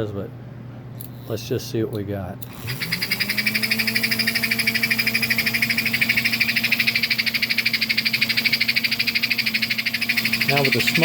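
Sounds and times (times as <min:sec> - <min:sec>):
toy motor humming with rasping pulse: 0:02.4 - 0:11.0.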